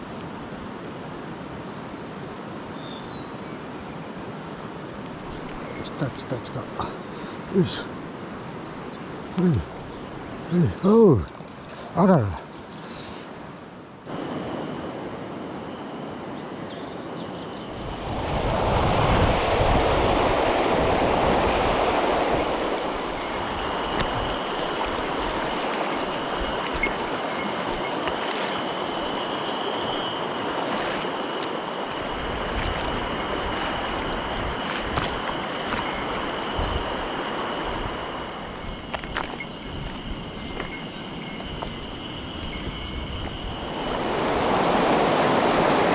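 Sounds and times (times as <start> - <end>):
stream rushing over rocks: 18.6 - 45.9
thin high tone: 23.2 - 31.5.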